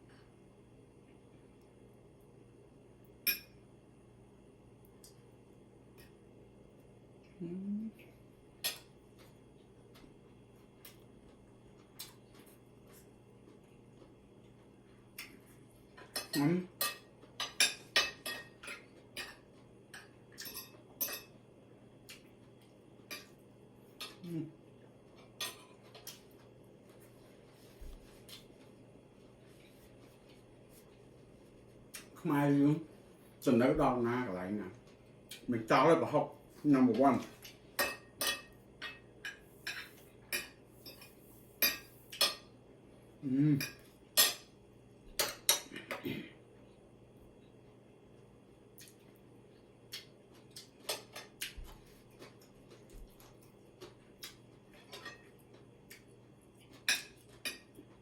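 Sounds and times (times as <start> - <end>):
cutlery clinking on a plate: 16.0 - 21.4, 37.8 - 42.5, 50.8 - 51.4, 56.7 - 57.8.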